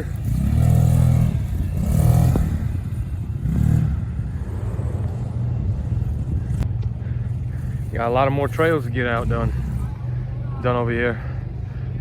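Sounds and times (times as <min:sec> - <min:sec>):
utility vehicle engine revving: 0:00.0 - 0:06.7.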